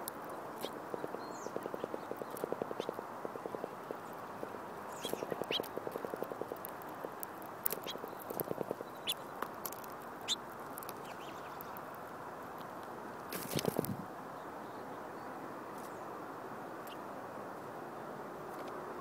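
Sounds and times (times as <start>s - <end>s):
rapid low tapping: 0.0s - 9.2s
small birds chirping: 0.0s - 17.7s.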